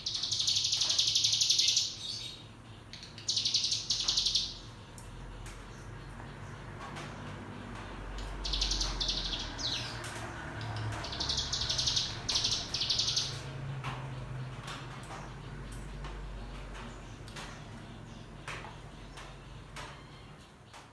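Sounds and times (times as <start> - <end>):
bird buzzing trills: 7.7 - 13.5.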